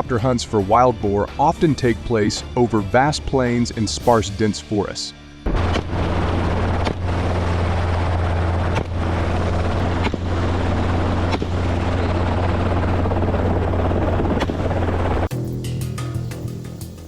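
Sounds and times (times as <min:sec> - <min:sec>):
helicopter rotor and engine: 0:05.3 - 0:15.3.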